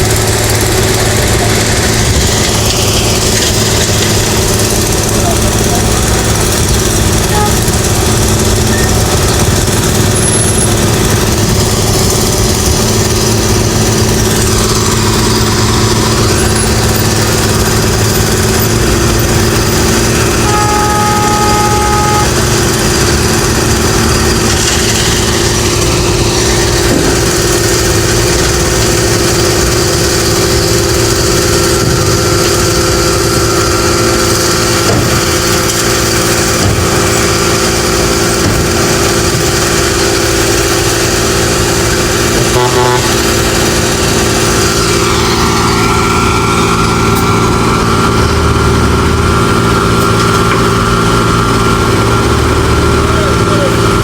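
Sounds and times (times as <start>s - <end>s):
construction machinery diesel engines: 0.0s - 54.0s
passing traffic: 0.0s - 54.0s.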